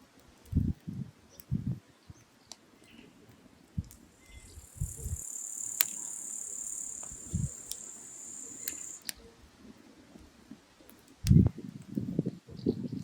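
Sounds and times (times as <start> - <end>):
high-pitched hiss: 4.0 - 9.0
firewood crackling pops: 4.8 - 9.1.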